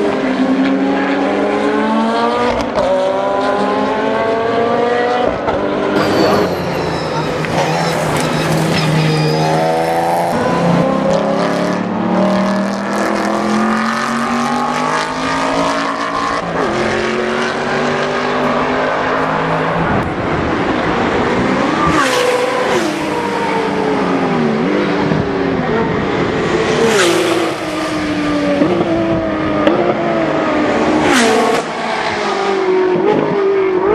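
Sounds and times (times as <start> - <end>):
race car engines at full throttle: 0.0 - 33.9.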